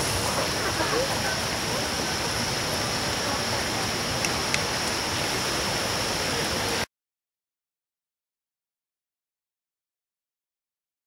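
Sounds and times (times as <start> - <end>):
steady rushing noise: 0.0 - 6.9.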